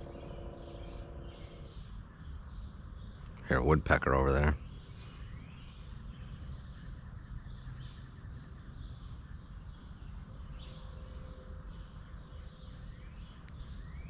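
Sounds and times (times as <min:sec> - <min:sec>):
low outdoor rumble: 0:00.0 - 0:07.3
songbirds chirping: 0:00.0 - 0:14.0.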